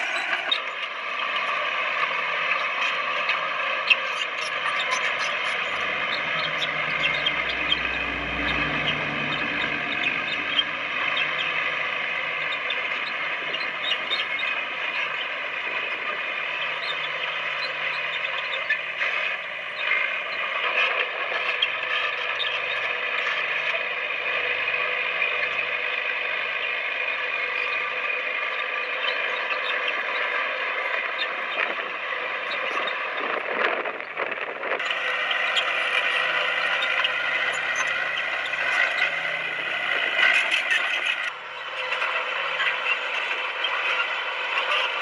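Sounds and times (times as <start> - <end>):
bulldozer engine running: 0.1 - 45.0
high metallic squeal: 4.0 - 23.8, 34.8 - 45.0.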